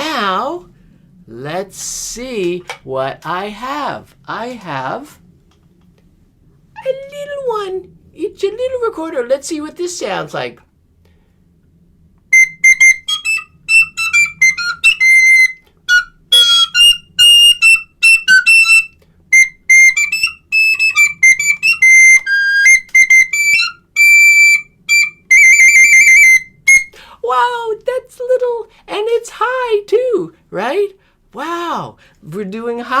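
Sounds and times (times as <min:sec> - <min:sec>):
recorder playing piping notes: 0:12.3 - 0:27.0.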